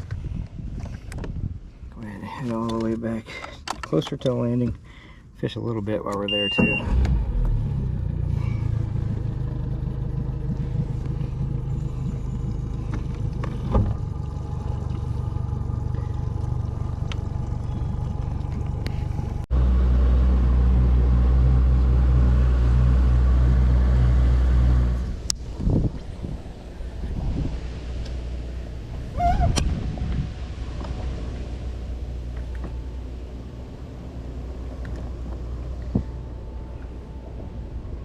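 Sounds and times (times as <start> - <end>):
outboard motor running: 8.0 - 25.4.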